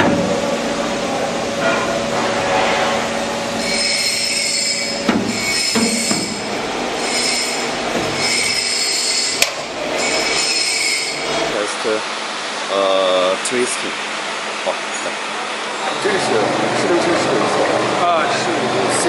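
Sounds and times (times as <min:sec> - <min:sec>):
steady machine din: 0:00.0 - 0:12.0
metal-on-metal squealing: 0:01.6 - 0:11.6
sharp metallic clanks: 0:03.6 - 0:11.4.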